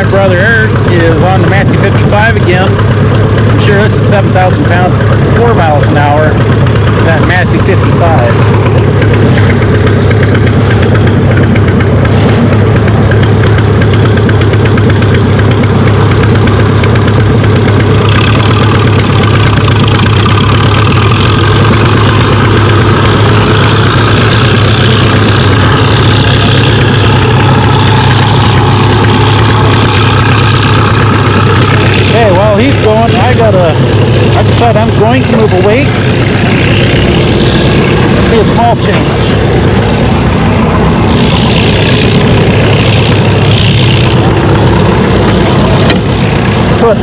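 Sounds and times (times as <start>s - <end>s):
tractor engine idling: 0.0s - 47.0s.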